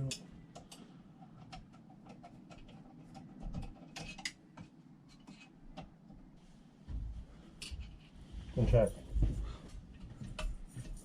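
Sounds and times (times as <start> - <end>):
metal parts clicking and tapping: 0.0 - 5.9.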